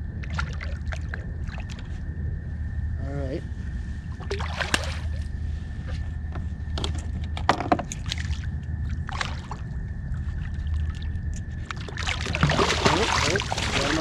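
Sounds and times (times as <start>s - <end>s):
low hum: 0.0s - 14.0s
water splashing at kayak: 4.2s - 5.2s, 9.0s - 9.7s, 10.3s - 14.0s
knocks and clicks on hull: 5.9s - 8.3s, 10.8s - 14.0s.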